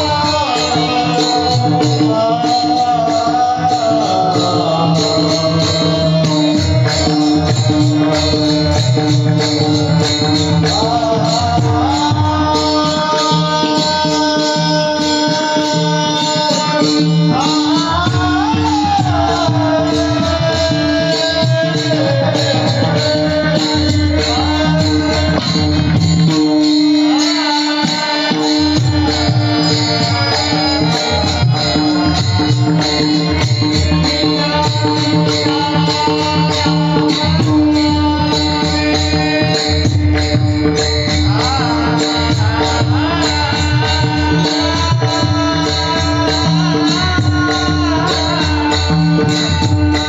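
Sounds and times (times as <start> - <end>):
jingling percussion: 0.0 - 50.0
man singing: 0.0 - 50.0.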